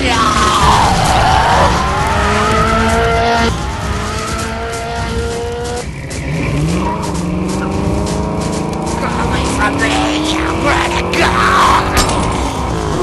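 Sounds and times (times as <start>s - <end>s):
car engines running hard: 0.0s - 13.0s
engine revving up: 0.0s - 13.0s.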